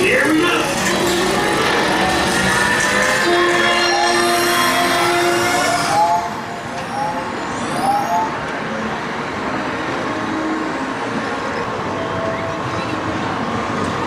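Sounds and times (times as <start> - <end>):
roller coaster track noise: 0.0 - 14.0
short rising squeals: 0.6 - 8.4.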